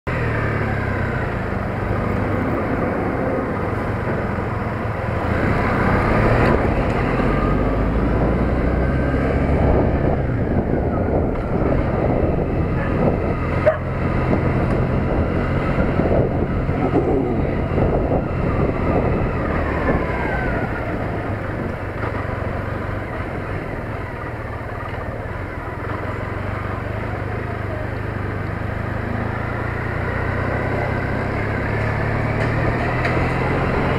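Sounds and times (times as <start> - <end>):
motorcycle engine running: 9.2 - 33.9.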